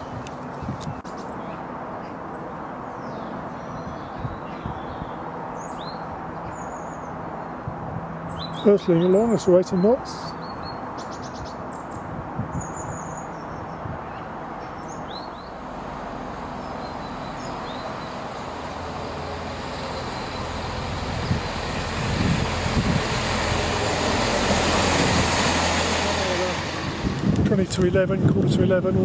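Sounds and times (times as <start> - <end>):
birds chirping: 0.0 - 7.6, 8.2 - 23.2
low engine hum: 0.0 - 29.0
train wheel and rail noise: 15.5 - 28.0.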